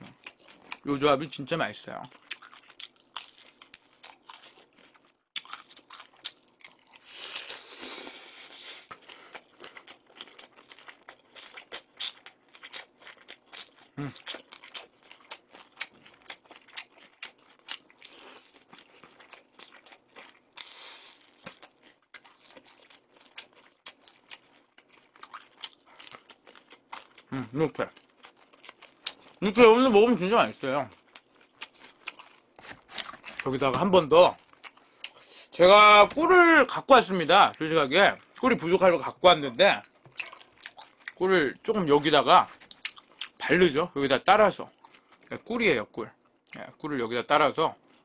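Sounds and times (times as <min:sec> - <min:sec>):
wet chewing with crunches: 0:02.0 - 0:29.4, 0:30.9 - 0:35.5, 0:39.8 - 0:41.3, 0:42.0 - 0:43.4.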